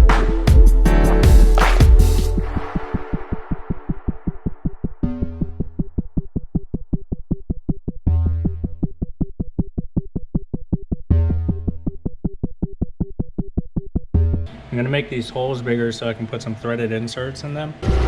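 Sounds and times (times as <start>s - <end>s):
deep bass hits: 0.0s - 4.2s.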